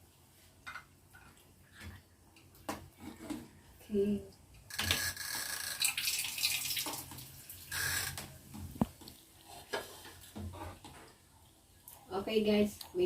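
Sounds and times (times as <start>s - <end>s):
soup splashing in pot: 5.8s - 7.7s.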